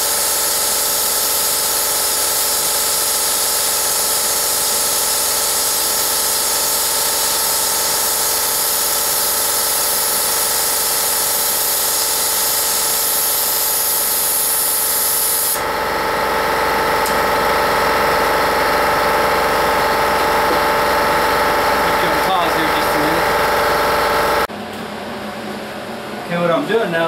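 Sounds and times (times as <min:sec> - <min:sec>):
welder arc hissing sizzle: 0:00.0 - 0:15.7
machine hum: 0:15.6 - 0:27.0.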